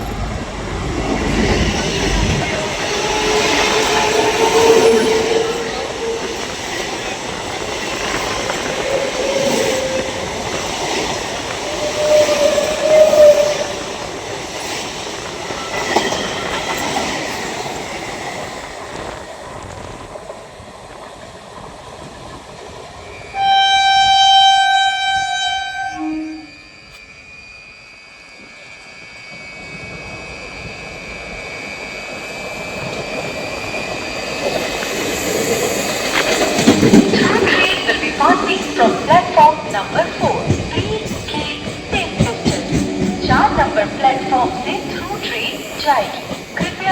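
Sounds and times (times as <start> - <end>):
train clattering over rails: 0.0 - 23.0, 29.4 - 46.9
train rumble: 0.0 - 46.9
train horn blast: 2.6 - 6.6, 11.7 - 13.8, 23.3 - 26.8.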